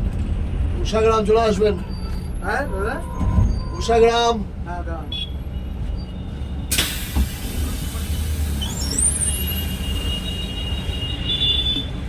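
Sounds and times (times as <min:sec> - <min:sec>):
coach engine and road rumble: 0:00.0 - 0:12.0
air hiss: 0:06.7 - 0:08.9.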